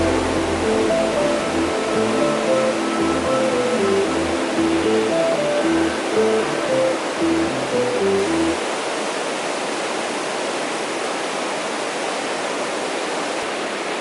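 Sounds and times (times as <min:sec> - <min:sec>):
music notes: 0:00.0 - 0:08.6
stream water rushing: 0:00.0 - 0:14.0.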